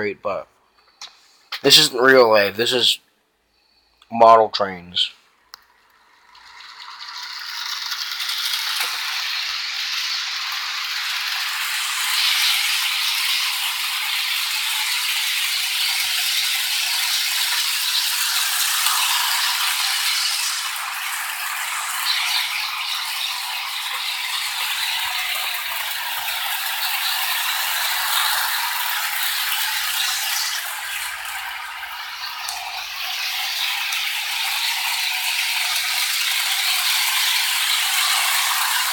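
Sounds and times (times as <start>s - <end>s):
model train wheels rattling: 6.3s - 14.4s.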